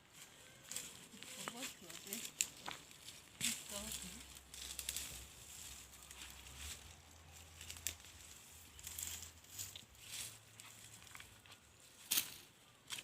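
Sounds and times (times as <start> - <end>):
dry maize leaves rustling: 0.0 - 13.0
maize cobs snapping: 1.5 - 5.2, 7.6 - 8.1.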